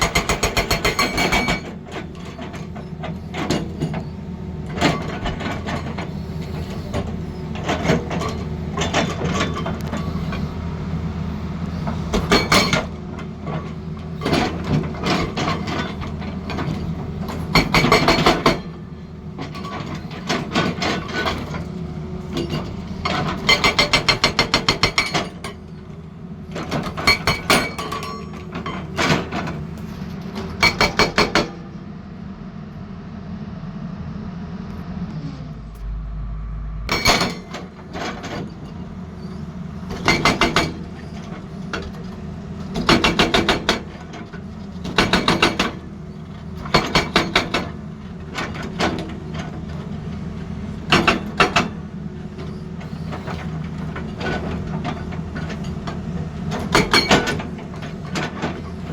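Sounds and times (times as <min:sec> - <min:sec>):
diesel engine hum: 0:01.8 - 0:27.1, 0:31.8 - 0:43.2
hydraulic breaker hammering: 0:17.5 - 0:18.8.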